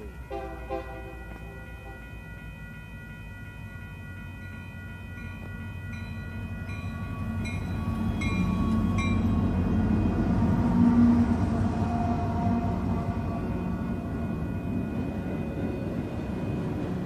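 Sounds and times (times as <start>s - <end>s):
crossing bell ringing: 0.0s - 17.0s
diesel locomotive engines rumbling: 0.0s - 17.0s.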